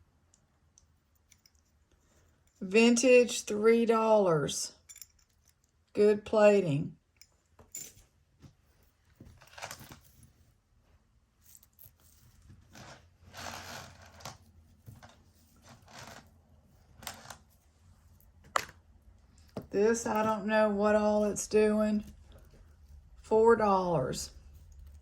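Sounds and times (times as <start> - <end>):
jewelry clinking: 0.8 - 2.7, 4.8 - 5.8, 7.1 - 8.1, 11.4 - 14.3.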